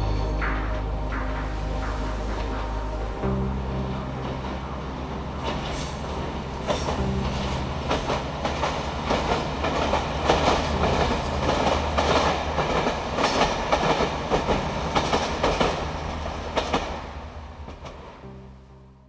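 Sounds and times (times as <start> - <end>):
train wheels clattering over rails: 5.4 - 18.1.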